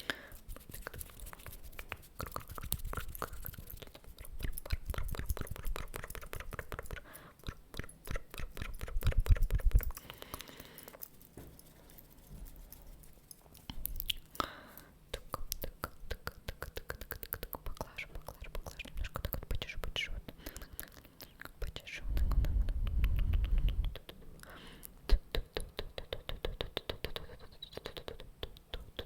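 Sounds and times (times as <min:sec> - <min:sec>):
wet mouth clicks and smacks: 0:00.3 - 0:11.7, 0:12.7 - 0:29.0
low rumbling: 0:22.0 - 0:24.0.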